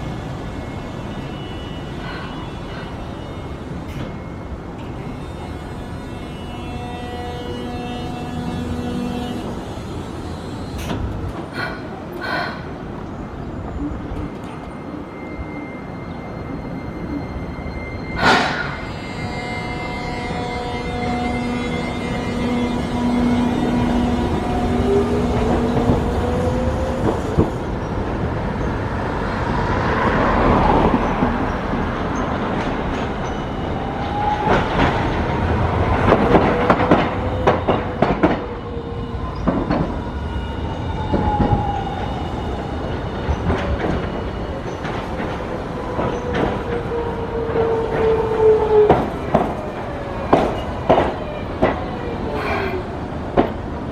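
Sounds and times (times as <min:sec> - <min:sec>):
tram drive whine: 0:00.0 - 0:53.9.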